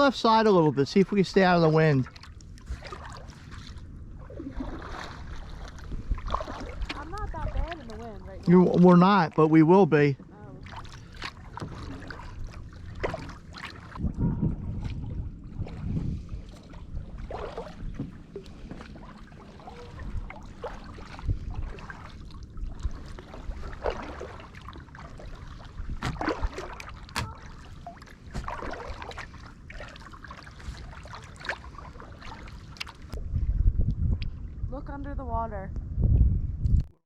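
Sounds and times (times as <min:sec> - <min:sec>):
paddle splashing in water: 0:01.0 - 0:09.7, 0:10.4 - 0:33.2
wind rumble on microphone: 0:02.2 - 0:08.9, 0:11.4 - 0:24.5, 0:25.1 - 0:29.9, 0:33.0 - 0:37.0.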